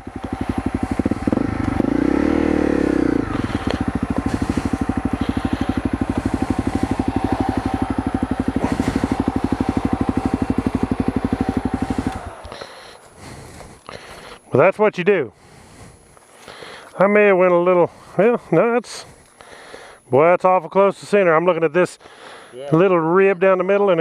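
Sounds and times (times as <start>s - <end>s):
motorcycle engine idling and revving: 0.0s - 14.5s, 15.3s - 16.9s.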